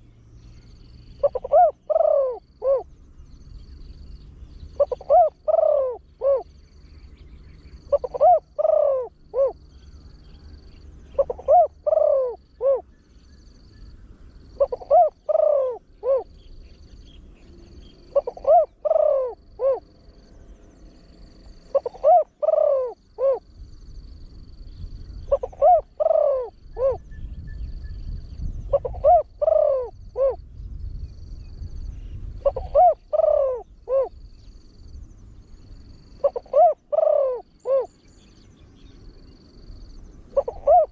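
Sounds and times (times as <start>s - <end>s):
dove cooing: 1.1s - 3.0s, 4.8s - 6.6s, 7.6s - 12.9s, 14.4s - 19.9s, 21.4s - 23.5s, 25.2s - 27.1s, 28.6s - 30.4s, 32.3s - 34.5s, 35.9s - 38.8s, 40.2s - 40.9s.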